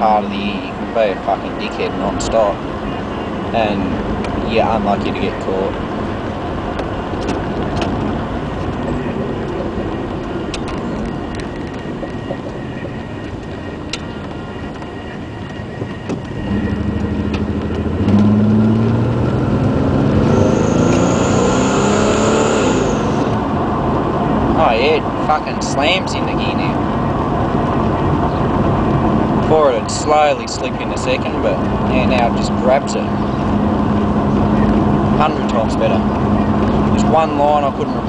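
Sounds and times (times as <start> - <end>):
road drone inside car: 0.0 - 38.0
high thin whine: 12.9 - 23.8
car engine revving: 15.4 - 38.0.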